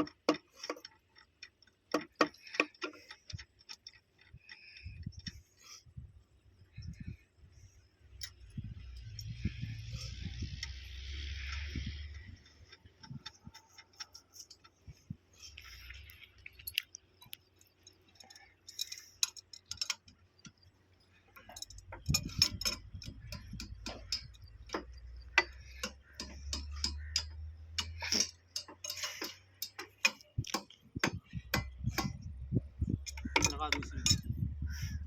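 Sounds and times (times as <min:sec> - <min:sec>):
metallic tool clicks and clinks: 0:16.6 - 0:20.7, 0:21.3 - 0:32.3, 0:33.0 - 0:34.3.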